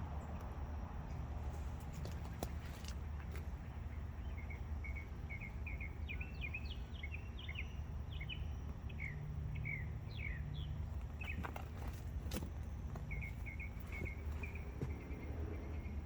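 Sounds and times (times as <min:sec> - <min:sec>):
low outdoor rumble: 0:00.0 - 0:16.0
bird singing chirps: 0:03.6 - 0:12.0, 0:12.8 - 0:16.0.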